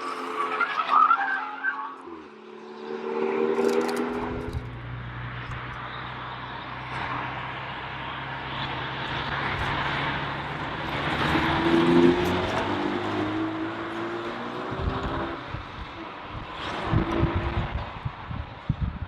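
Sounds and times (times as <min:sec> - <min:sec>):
car engine drone: 0:00.0 - 0:19.0
road noise: 0:00.0 - 0:19.0.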